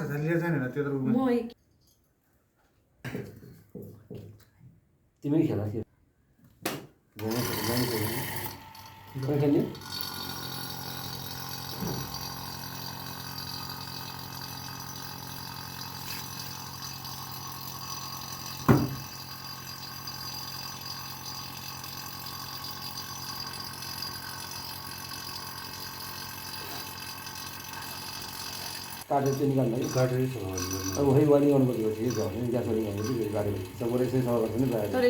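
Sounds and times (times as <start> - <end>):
refrigerator compressor humming: 9.9 - 35.0.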